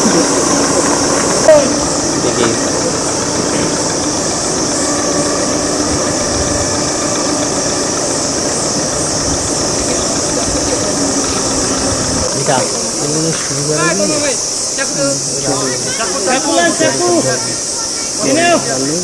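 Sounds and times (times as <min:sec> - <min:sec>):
engine running: 0:00.0 - 0:19.0
high insect drone: 0:00.0 - 0:19.0.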